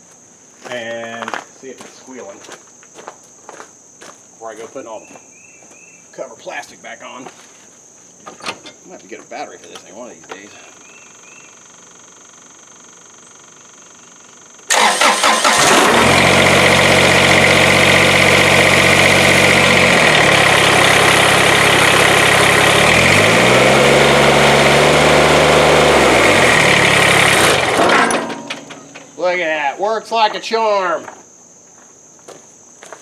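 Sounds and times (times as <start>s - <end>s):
tractor starter cranking: 8.2s - 8.9s, 14.7s - 29.2s
diesel engine running: 14.7s - 29.2s.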